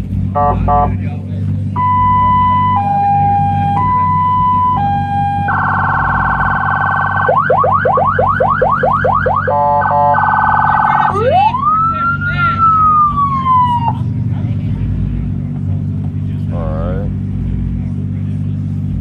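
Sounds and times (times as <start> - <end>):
electronic siren cycling tones: 1.8 - 14.0.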